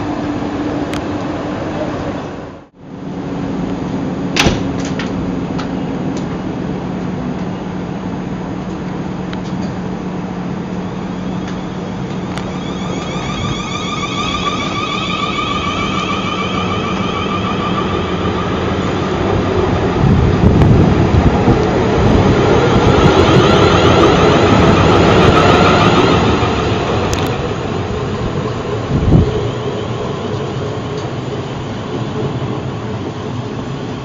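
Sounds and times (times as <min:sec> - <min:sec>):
electric train hum: 0:00.0 - 0:34.0
train wheels rumbling: 0:00.0 - 0:34.0
traction motors whining: 0:10.6 - 0:33.8.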